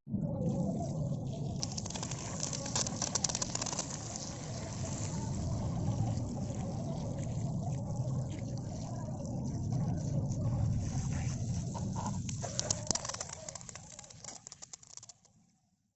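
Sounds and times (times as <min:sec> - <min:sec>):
crackling splashing clicks: 0:01.6 - 0:07.0, 0:11.5 - 0:15.4.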